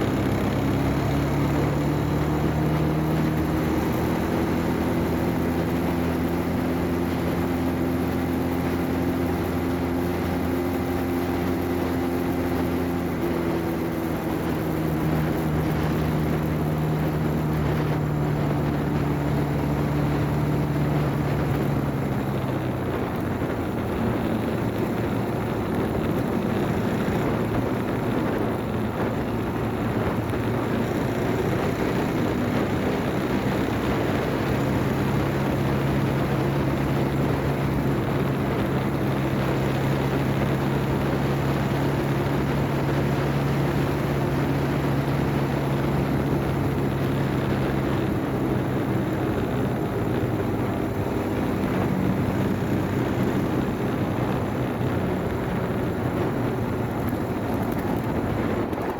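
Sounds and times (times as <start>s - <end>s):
motorcycle engine hum: 0.0s - 58.9s
wind and road noise: 0.0s - 58.9s.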